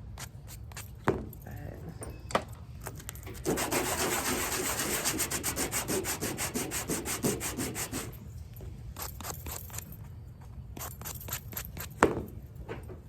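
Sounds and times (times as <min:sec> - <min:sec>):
sandpaper rubbing back and forth: 0:03.3 - 0:08.2.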